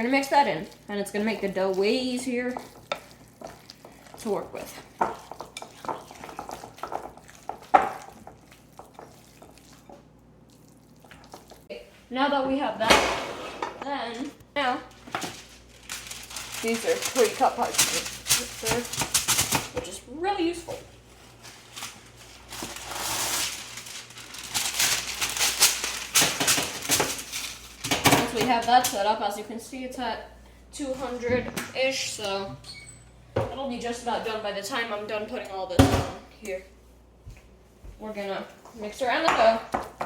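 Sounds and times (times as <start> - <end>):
spoon stirring dough in bowl: 0.0 - 11.7
paper rustling and crinkling: 14.9 - 19.8, 20.9 - 28.0.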